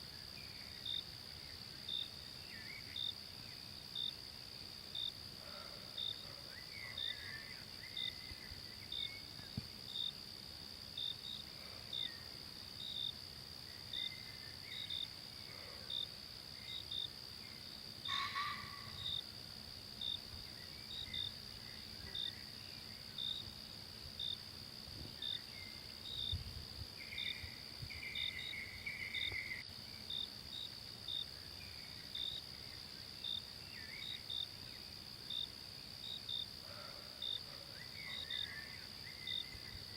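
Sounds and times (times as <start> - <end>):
cricket-like chirps: 0.0 - 39.9
insect drone: 0.0 - 39.9.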